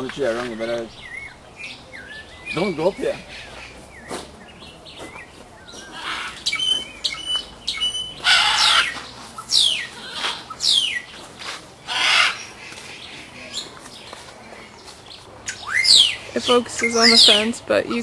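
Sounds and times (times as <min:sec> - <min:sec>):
birds calling: 0:00.0 - 0:18.0
harsh bird squawk: 0:00.5 - 0:04.2, 0:05.7 - 0:11.1, 0:11.9 - 0:13.0, 0:15.5 - 0:17.5.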